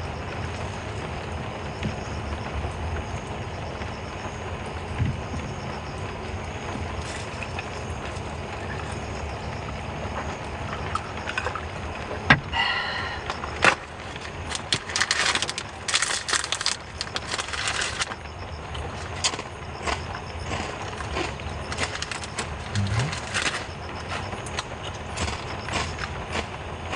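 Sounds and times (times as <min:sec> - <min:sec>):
small objects clattering: 0:13.6 - 0:18.2, 0:20.6 - 0:25.4.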